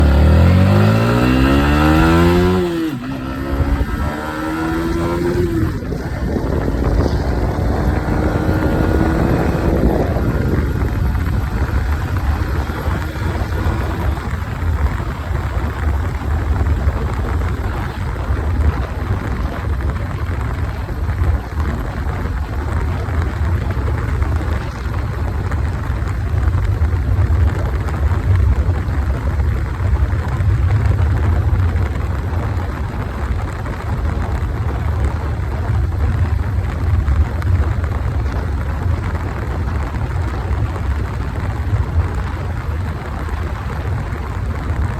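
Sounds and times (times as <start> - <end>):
wind rushing: 0.0 - 20.2
motorcycle engine accelerating: 0.0 - 44.9.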